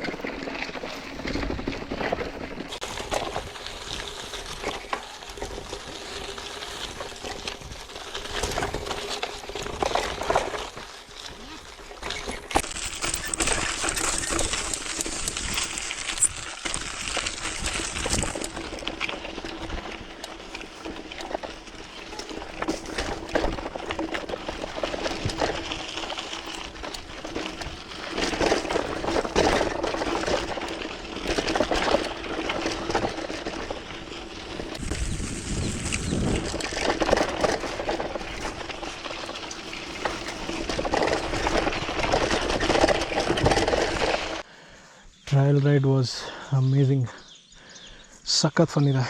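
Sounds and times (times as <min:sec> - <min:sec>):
bike clicks and rattles: 0:00.0 - 0:44.5
bike tyres crunching over dirt: 0:00.0 - 0:49.0.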